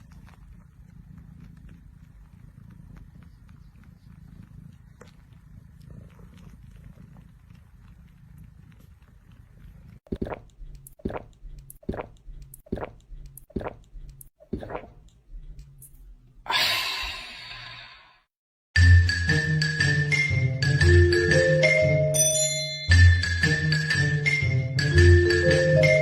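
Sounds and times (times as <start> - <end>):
cat purring: 0.0 - 16.5.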